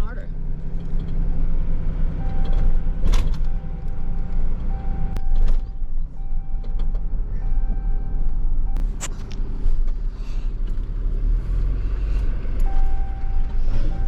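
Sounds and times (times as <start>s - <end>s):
truck engine rumbling: 0.0s - 14.0s
electronic beep tone: 7.4s - 8.8s.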